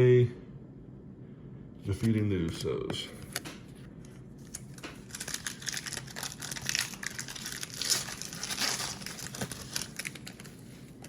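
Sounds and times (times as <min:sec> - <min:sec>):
foil wrapper tearing and crinkling: 0:04.4 - 0:11.0.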